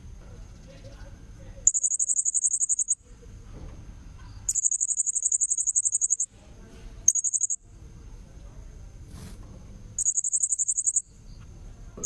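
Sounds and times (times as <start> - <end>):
parrot high-pitched trills: 1.7 - 3.0, 4.5 - 6.3, 7.1 - 7.6, 10.0 - 11.0.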